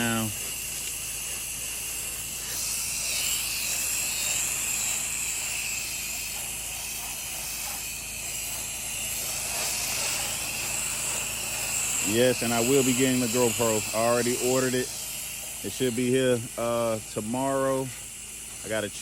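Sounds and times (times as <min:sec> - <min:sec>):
pressure washer spraying: 0:00.0 - 0:19.0.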